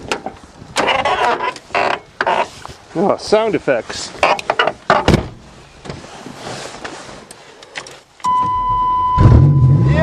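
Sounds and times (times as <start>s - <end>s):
electronic warning tone: 8.3s - 10.0s
car engine starting and running: 8.6s - 10.0s.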